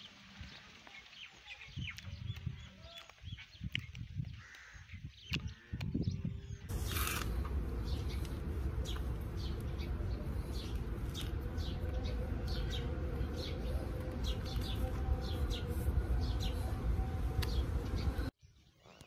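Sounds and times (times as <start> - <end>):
small birds chirping: 0.0 - 19.0
low outdoor rumble: 6.4 - 18.3.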